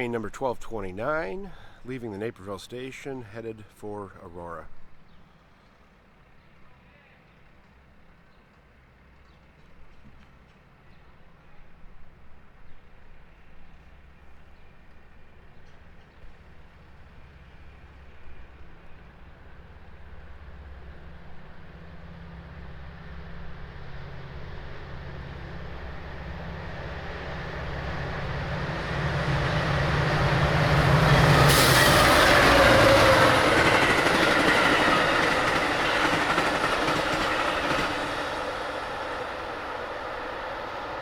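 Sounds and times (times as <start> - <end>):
train wheels clickety-clack: 13.6 - 41.0
diesel locomotive engine drone: 16.6 - 41.0.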